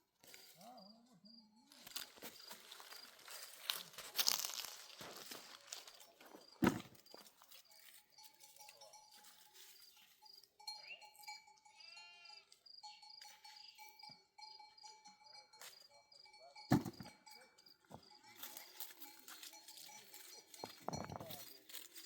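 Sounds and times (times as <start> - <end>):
sharp thump: 6.6 - 7.0, 16.7 - 17.1
livestock bleating: 10.7 - 14.1.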